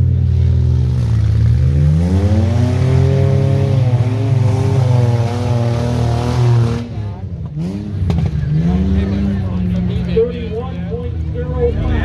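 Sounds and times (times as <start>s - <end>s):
vehicle engine revving hard: 0.4s - 10.0s.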